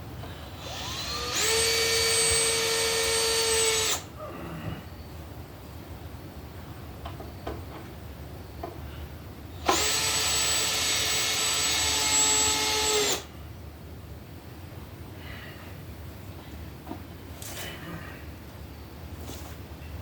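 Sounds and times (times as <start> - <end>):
power drill running: 0.6 - 4.1, 9.6 - 13.3.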